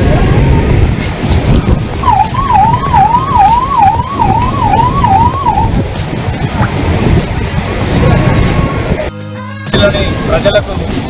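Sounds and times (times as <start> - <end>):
low rushing noise: 0.0 - 9.1
siren wailing: 2.0 - 5.8.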